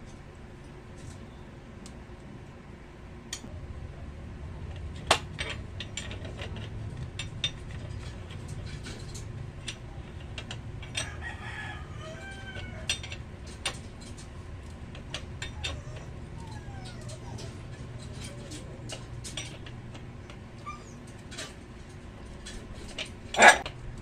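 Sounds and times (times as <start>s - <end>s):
rooster crowing: 10.9s - 13.2s.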